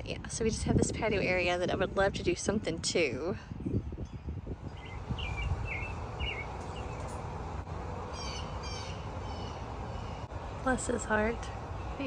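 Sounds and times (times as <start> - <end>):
songbirds chirping: 4.1 - 12.0.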